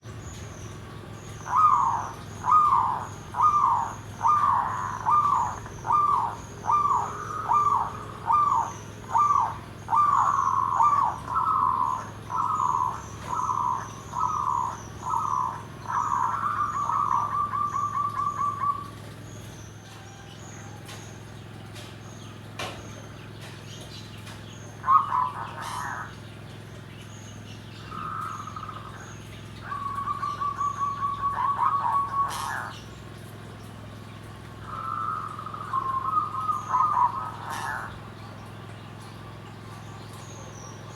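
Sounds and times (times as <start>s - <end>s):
dove cooing: 1.4s - 19.0s, 24.8s - 26.1s, 27.9s - 32.8s, 34.6s - 38.2s.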